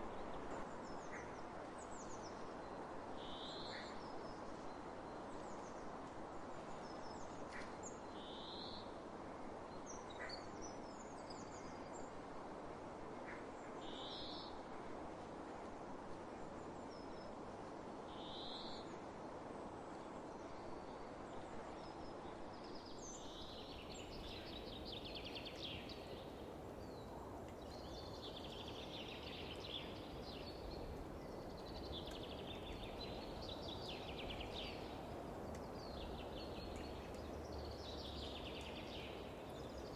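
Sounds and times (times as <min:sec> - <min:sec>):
songbirds calling: 0:22.8 - 0:39.9
trilling birdsong: 0:23.4 - 0:39.9.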